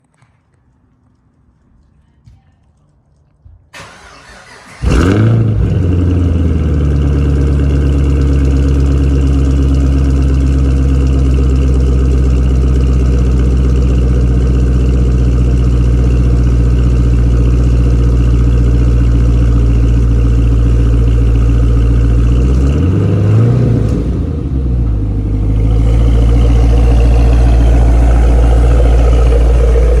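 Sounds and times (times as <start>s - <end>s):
car engine cold start and idle: 3.8s - 30.0s
engine revving: 3.9s - 11.2s, 18.2s - 30.0s.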